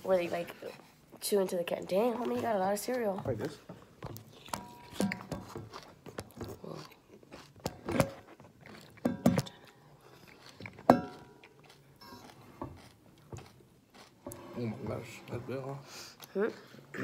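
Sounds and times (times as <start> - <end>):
cereal crunching while chewed: 4.1 - 14.3.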